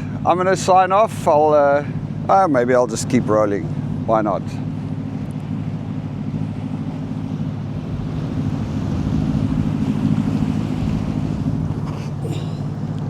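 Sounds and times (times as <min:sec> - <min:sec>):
boat engine running: 0:00.0 - 0:13.0
water noise: 0:00.0 - 0:13.0
wind noise: 0:07.8 - 0:12.0.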